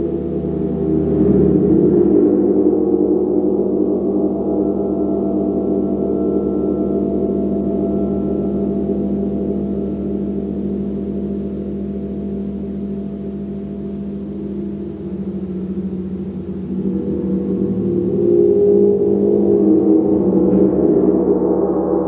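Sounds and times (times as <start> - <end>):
gong ringing: 0.0 - 22.0.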